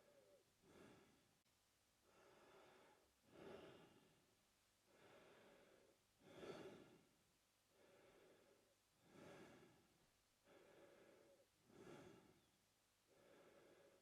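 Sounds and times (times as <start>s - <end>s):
man breathing through mouth: 10.4s - 12.5s.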